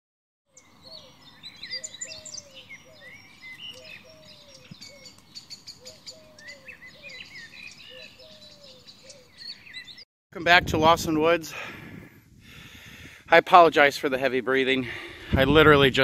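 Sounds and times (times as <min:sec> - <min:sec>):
birds chirping and trilling: 0:00.5 - 0:10.1.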